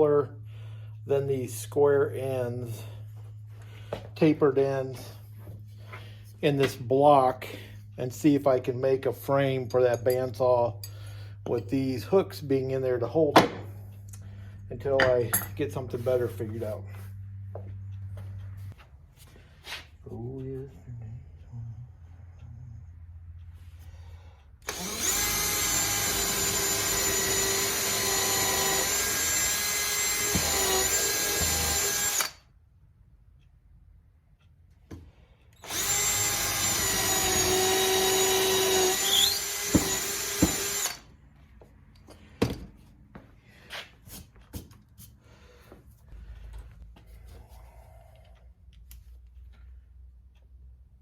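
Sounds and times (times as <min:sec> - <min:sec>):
electric drill boring wood: 0:24.6 - 0:32.4, 0:35.6 - 0:41.1.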